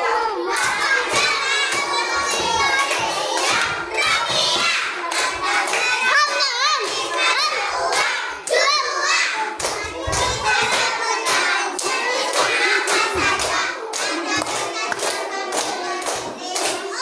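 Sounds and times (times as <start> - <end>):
children shouting and singing: 0.0 - 17.0
hands clapping: 0.6 - 8.7, 9.6 - 17.0.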